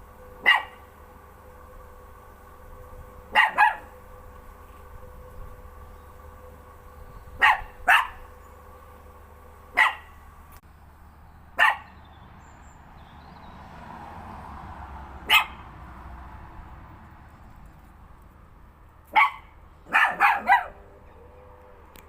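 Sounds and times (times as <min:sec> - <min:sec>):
faint steady hum: 0:00.0 - 0:11.5
dog barking: 0:00.4 - 0:00.9, 0:03.3 - 0:04.0, 0:07.4 - 0:08.3, 0:09.7 - 0:10.2, 0:11.6 - 0:12.0, 0:15.2 - 0:15.7, 0:19.1 - 0:20.9.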